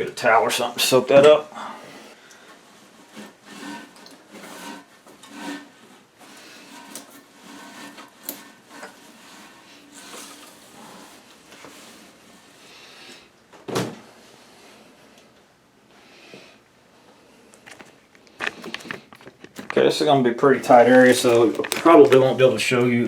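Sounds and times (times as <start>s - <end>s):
hands handling parts and towel: 20.7s - 22.4s.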